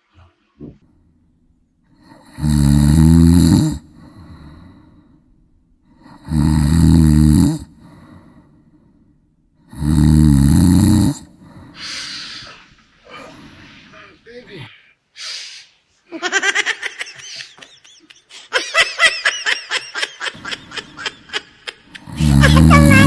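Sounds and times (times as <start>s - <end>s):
person snoring loudly: 2.0s - 4.7s, 5.9s - 8.1s, 9.7s - 11.6s, 22.0s - 23.0s
soft breaths out: 11.3s - 16.0s.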